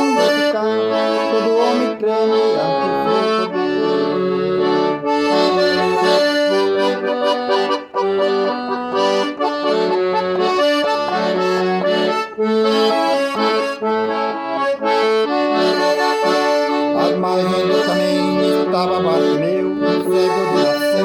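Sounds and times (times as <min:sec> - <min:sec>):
accordion melody: 0:00.0 - 0:21.0.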